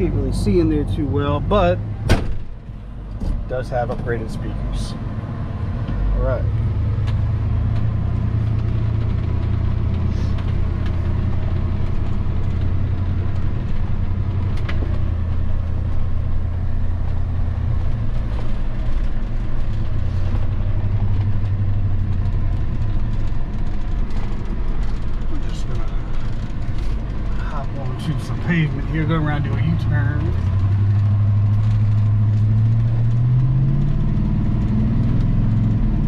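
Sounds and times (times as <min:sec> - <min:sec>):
road noise: 0:00.0 - 0:36.0
truck engine droning: 0:00.0 - 0:36.0.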